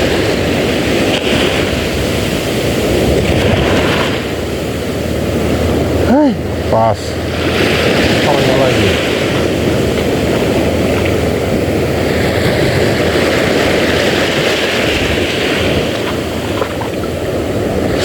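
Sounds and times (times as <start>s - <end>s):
sea waves washing: 0.0s - 18.0s
wind on microphone: 0.0s - 18.0s.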